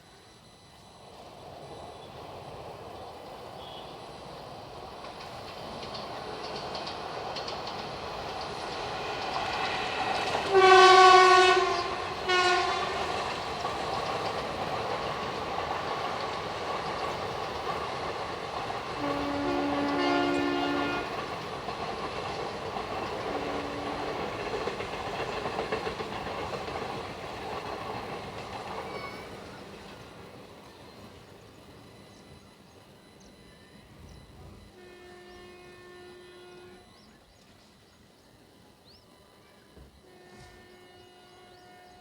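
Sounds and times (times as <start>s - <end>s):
train rumbling on rails: 0.7s - 42.0s
train horn blasts: 3.6s - 4.1s, 9.8s - 13.5s, 18.9s - 21.4s, 23.2s - 24.5s, 34.6s - 37.2s, 40.0s - 42.0s.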